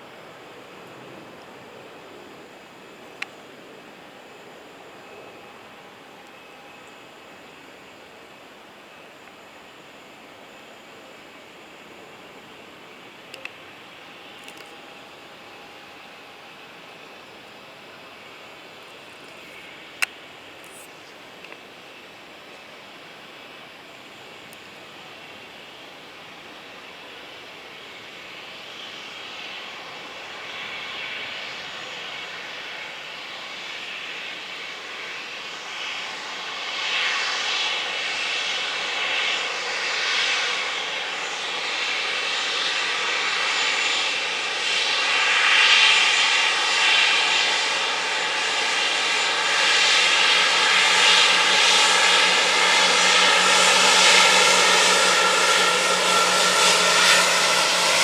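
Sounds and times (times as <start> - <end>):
jet engines roaring: 29.0 - 58.0.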